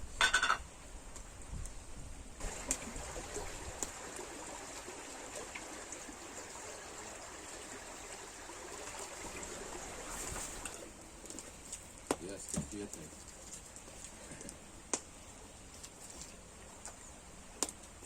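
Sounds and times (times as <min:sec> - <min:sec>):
stream water trickling: 0:02.4 - 0:14.3.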